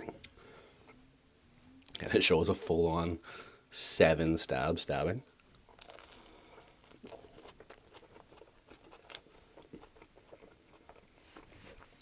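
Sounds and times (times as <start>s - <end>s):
biting and chewing crunchy bread: 5.4s - 12.0s.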